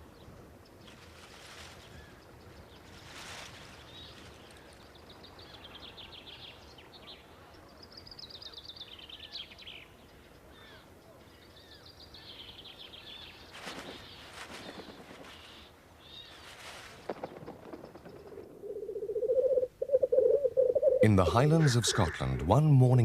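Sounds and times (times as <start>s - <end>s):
faint outdoor background: 0.0s - 23.0s
bird trills: 17.2s - 22.5s.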